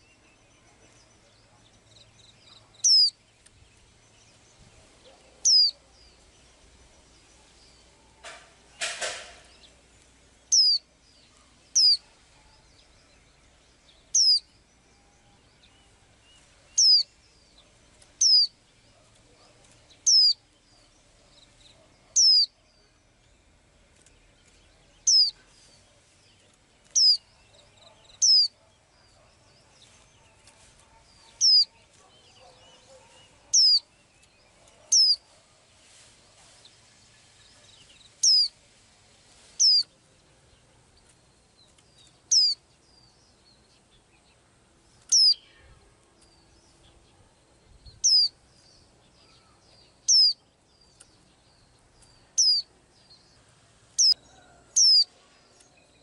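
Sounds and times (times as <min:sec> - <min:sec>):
small bird high-pitched call: 0:02.4 - 0:03.2, 0:05.2 - 0:06.2, 0:10.4 - 0:12.8, 0:14.1 - 0:15.7, 0:16.7 - 0:17.2, 0:18.2 - 0:18.6, 0:20.0 - 0:20.9, 0:21.7 - 0:23.0, 0:25.0 - 0:25.5, 0:27.0 - 0:28.6, 0:30.6 - 0:33.9, 0:34.9 - 0:35.3, 0:37.8 - 0:38.6, 0:39.6 - 0:39.9, 0:42.3 - 0:42.6, 0:45.1 - 0:45.8, 0:47.9 - 0:48.4, 0:49.1 - 0:50.5, 0:52.2 - 0:52.7, 0:54.0 - 0:55.2.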